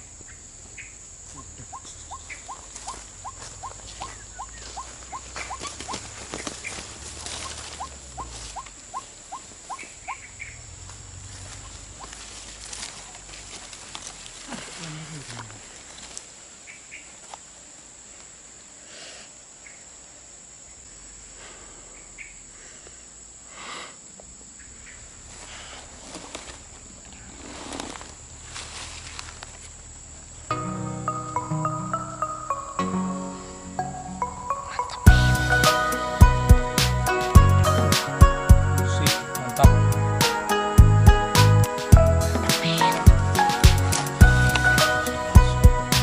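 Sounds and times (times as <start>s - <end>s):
insects trilling: 0.0s - 40.8s, 41.6s - 46.0s
waterhen calling: 1.7s - 10.6s, 41.7s - 46.0s
rustling: 2.4s - 10.0s, 10.8s - 17.5s, 25.1s - 30.2s
steady high hiss: 27.3s - 46.0s.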